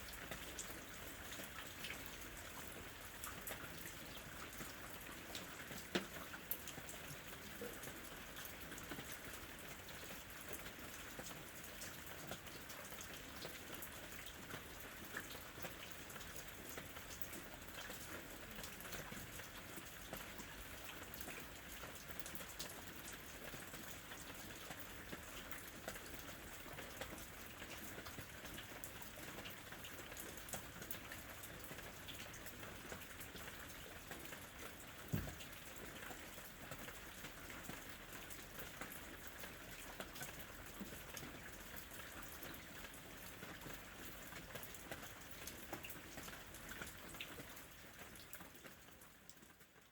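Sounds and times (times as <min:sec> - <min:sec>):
louder tap: 0:35.1 - 0:35.4.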